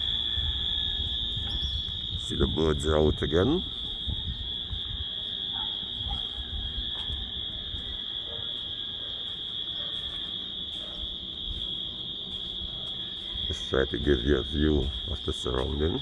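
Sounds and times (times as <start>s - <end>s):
faint bird chirps: 0.0s - 2.3s
wind rumble on microphone: 0.0s - 8.4s, 11.3s - 16.0s
high-pitched insect chorus: 0.0s - 16.0s.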